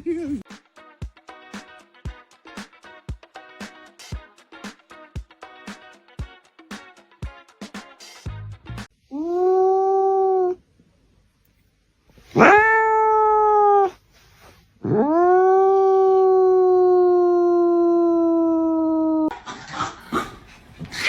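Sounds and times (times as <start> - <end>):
dog howling: 9.1 - 10.6, 12.4 - 14.0, 14.8 - 19.3.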